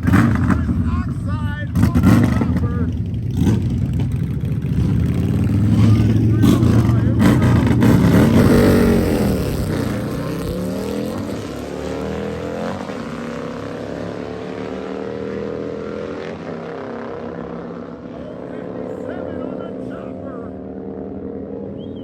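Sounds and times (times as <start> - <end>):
motorcycle engine running hard: 0.0 - 22.0.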